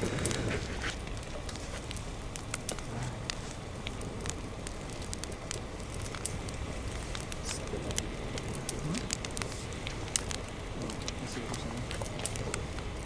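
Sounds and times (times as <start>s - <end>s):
campfire crackling and popping: 0.0s - 13.0s
low rumble: 0.0s - 13.0s.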